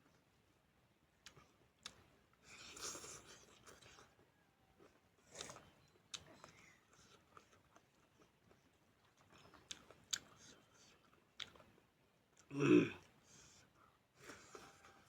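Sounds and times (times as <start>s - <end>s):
person chewing: 1.2s - 4.1s, 4.9s - 11.8s.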